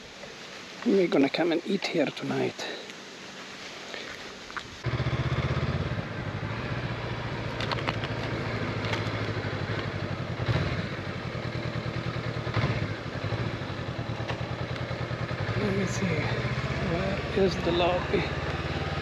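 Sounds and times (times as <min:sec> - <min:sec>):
motorcycle engine running: 0:04.8 - 0:19.0.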